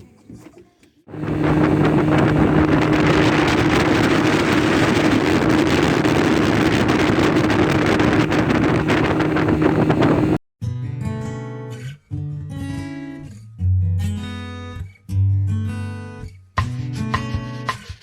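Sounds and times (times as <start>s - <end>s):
motorboat engine humming: 0.0s - 10.4s
wind on microphone: 1.1s - 10.4s.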